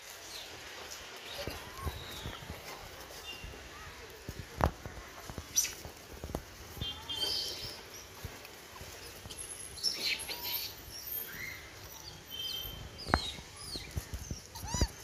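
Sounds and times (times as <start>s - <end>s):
steady outdoor hiss: 0.0s - 15.0s
small birds chirping and whistling: 1.2s - 2.6s, 6.8s - 15.0s.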